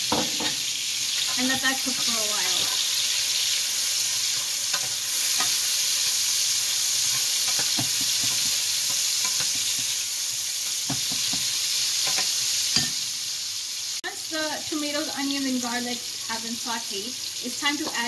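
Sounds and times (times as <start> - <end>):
vegetables sizzling in a frying pan: 0.0 - 18.0
spoon knocking against pan: 7.1 - 9.9, 10.8 - 13.0.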